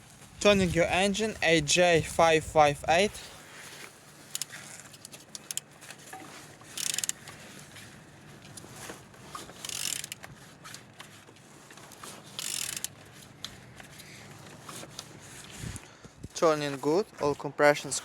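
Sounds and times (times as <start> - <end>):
mechanical clicking: 4.3 - 5.6, 6.8 - 7.2, 9.6 - 10.2, 12.4 - 12.9.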